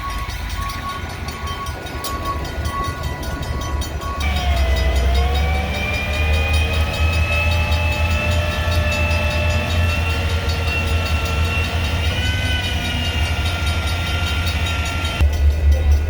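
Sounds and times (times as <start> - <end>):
freight train rumble: 0.0 - 16.0.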